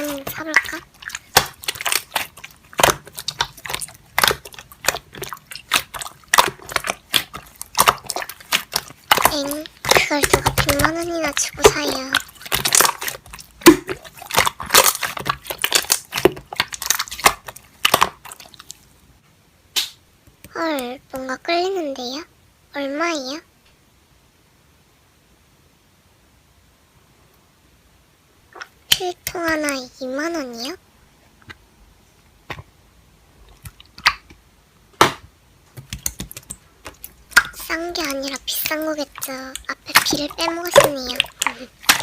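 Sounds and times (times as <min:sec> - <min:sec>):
slime crackling and popping: 0:00.0 - 0:18.9, 0:35.8 - 0:42.0.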